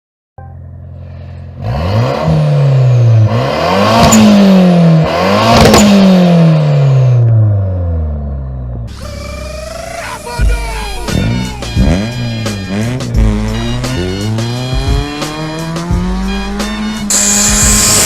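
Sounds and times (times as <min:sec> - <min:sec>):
car engine idling and revving: 0:00.4 - 0:18.0
exhaust crack: 0:08.6 - 0:18.0.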